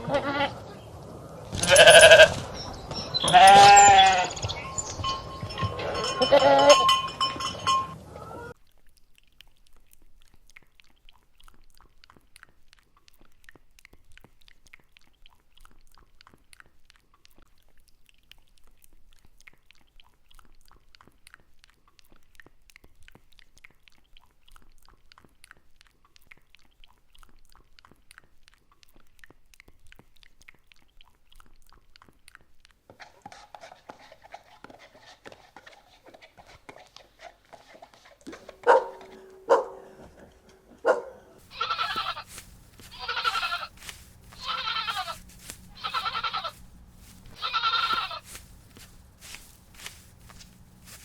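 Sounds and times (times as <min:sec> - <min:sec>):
animal calling: 0:00.0 - 0:06.8, 0:08.0 - 0:08.6, 0:38.3 - 0:51.0.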